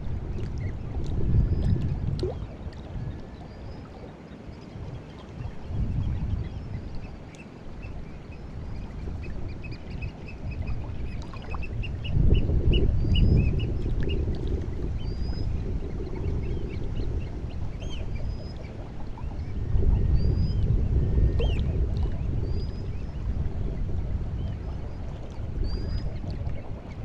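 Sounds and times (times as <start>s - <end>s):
sea water lapping on shore: 0.0s - 27.0s
bird calls and chirps: 14.9s - 21.7s.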